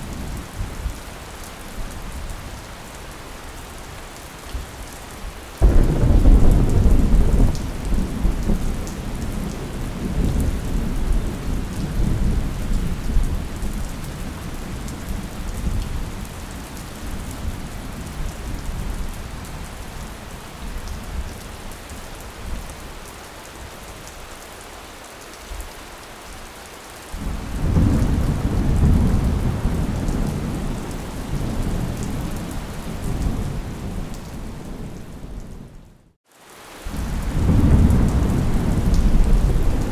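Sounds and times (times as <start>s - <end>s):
steady rain: 0.0s - 39.9s
thunder rolling: 5.6s - 8.8s, 37.0s - 39.9s.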